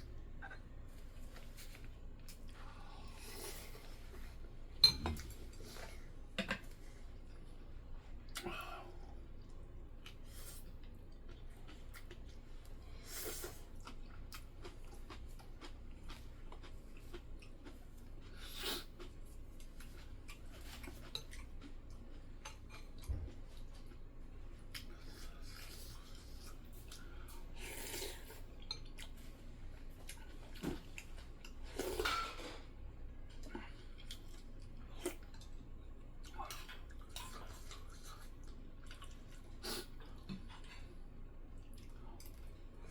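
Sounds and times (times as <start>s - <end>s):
low steady hum: 0.0s - 42.9s
chewing: 9.4s - 12.8s, 13.4s - 42.9s
utensils clinking on dishes: 31.9s - 32.6s.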